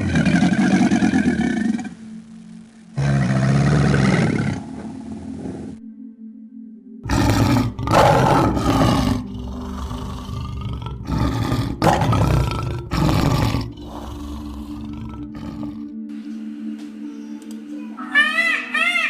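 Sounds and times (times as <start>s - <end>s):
large animal roaring: 0.0s - 2.0s, 3.0s - 5.8s, 7.0s - 16.0s
steady low hum: 0.0s - 16.9s.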